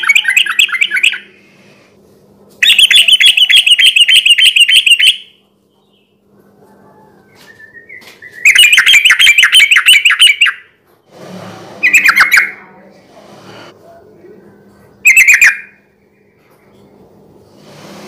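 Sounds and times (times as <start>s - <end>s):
bulbul chattering song: 0.0s - 1.5s, 2.6s - 5.4s, 7.9s - 10.7s, 11.8s - 12.8s, 15.0s - 16.4s.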